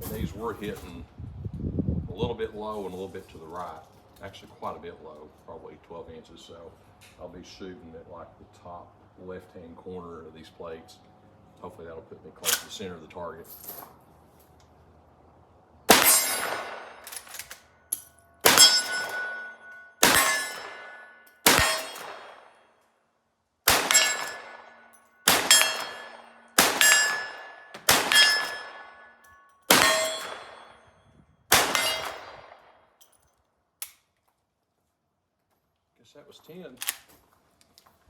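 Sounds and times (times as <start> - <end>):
rifle shots: 15.9 - 17.6, 18.4 - 22.5, 23.7 - 29.1, 29.7 - 30.8, 31.5 - 32.7
steel plate clanging: 15.9 - 22.4, 23.7 - 30.8, 31.5 - 32.3.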